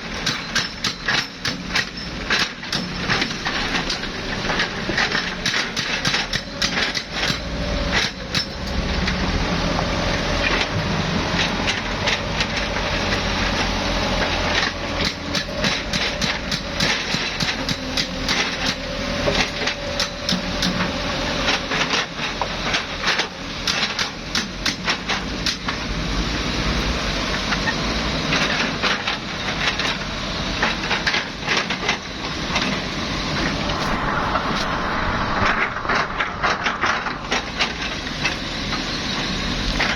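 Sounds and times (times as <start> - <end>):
excavator diesel engine: 0.0 - 39.9
steady whine: 30.5 - 39.9.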